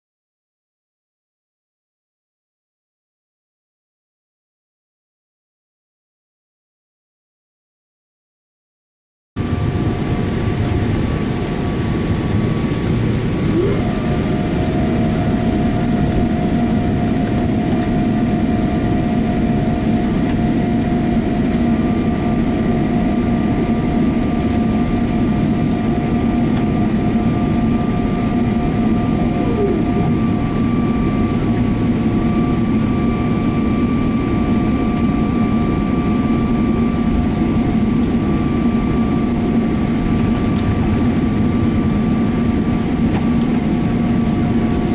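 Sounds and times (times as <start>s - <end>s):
aircraft cabin engine rumble: 9.4s - 44.9s
steady whining tones: 9.4s - 44.9s
brief rising tone: 13.4s - 15.5s
brief falling tone: 13.4s - 16.0s, 29.0s - 31.4s.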